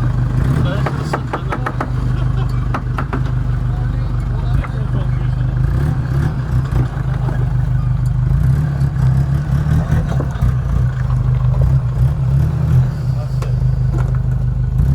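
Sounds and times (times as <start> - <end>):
vehicle engine running at low revs: 0.0 - 14.9.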